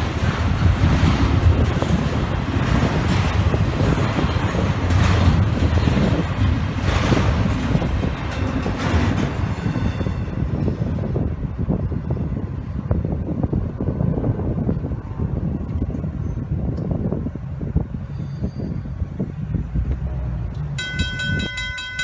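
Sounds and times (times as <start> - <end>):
wheel clacks: 0.0 - 10.5
freight train rumbling on rails: 0.0 - 22.0.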